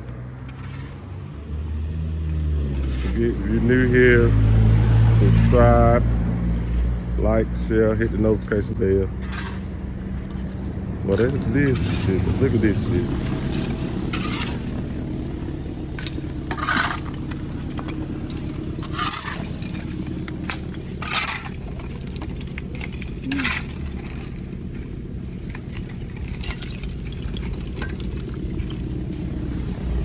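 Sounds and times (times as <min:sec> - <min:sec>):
steady low hum: 0:09.1 - 0:30.0
clinking impacts on brick: 0:09.2 - 0:29.2.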